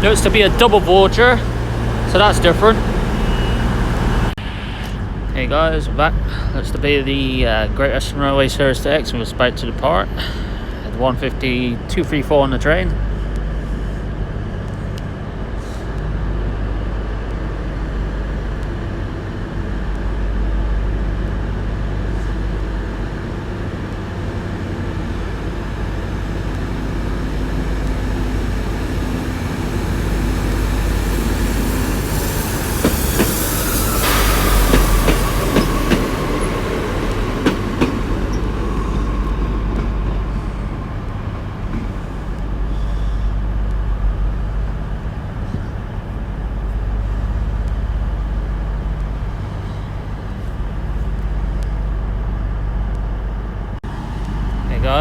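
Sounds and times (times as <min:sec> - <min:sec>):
hissing: 0:00.0 - 0:04.4, 0:22.9 - 0:43.2
diesel train engines running: 0:00.0 - 0:55.0.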